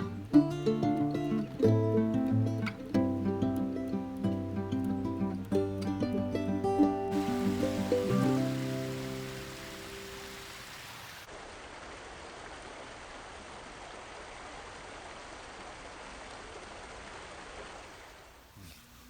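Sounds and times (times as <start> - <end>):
music: 0.0 - 10.0
steady rushing noise: 7.1 - 11.3.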